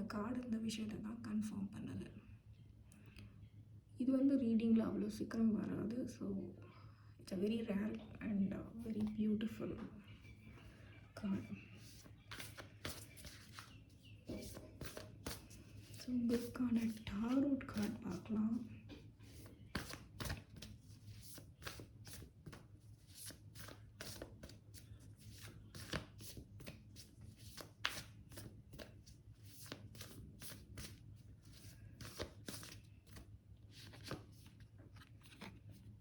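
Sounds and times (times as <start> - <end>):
cards being shuffled: 11.8 - 18.3, 19.0 - 36.0.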